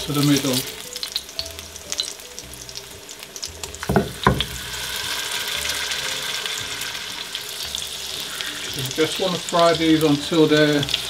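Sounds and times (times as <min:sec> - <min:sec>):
food sizzling in frying pan: 0:00.0 - 0:11.0
sharp knocks: 0:03.9 - 0:04.6.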